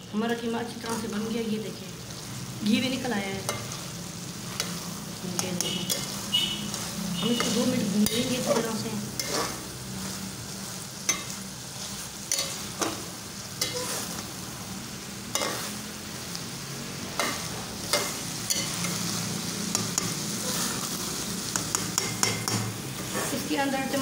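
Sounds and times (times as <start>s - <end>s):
meat sizzling in a pot: 0.0s - 24.0s
spoon scraping a metal pot: 5.5s - 9.6s, 13.6s - 14.2s.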